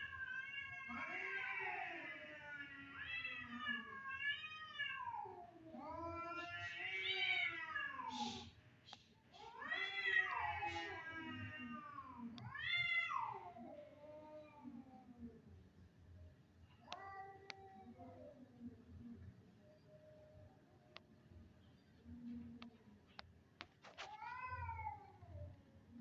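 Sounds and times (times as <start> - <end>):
cat yowling: 9.5 - 13.7.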